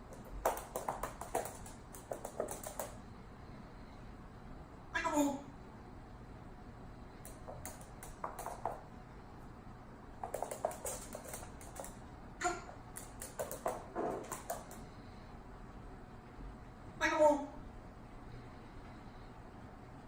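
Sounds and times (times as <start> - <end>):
parrot clicks and taps: 0.1 - 3.0, 7.2 - 8.8, 10.2 - 12.0, 12.9 - 14.8.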